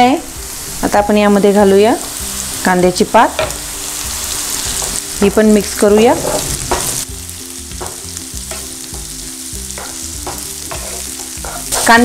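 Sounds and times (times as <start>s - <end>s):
spring onion sizzling in oil: 0.0s - 12.0s
spatula scraping pan: 5.8s - 7.1s, 9.8s - 12.0s.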